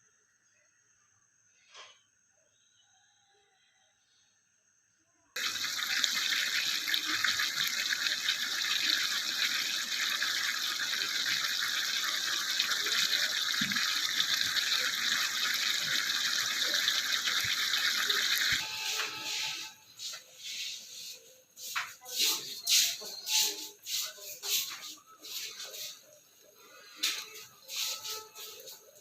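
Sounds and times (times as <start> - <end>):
water running from a tap: 5.4 - 19.7.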